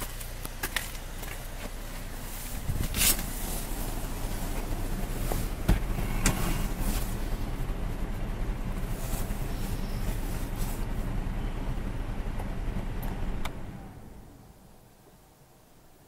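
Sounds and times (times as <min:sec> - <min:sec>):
car engine starting and idling: 0:00.0 - 0:15.4.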